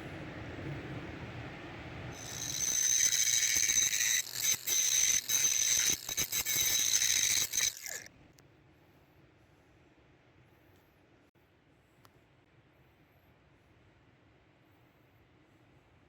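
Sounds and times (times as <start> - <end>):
power tool whining: 2.2 - 8.1.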